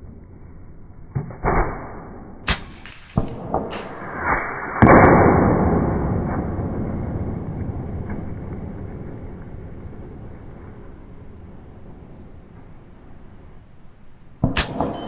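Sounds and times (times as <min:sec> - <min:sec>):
air rifle shot: 0:02.5 - 0:05.6, 0:14.4 - 0:15.0.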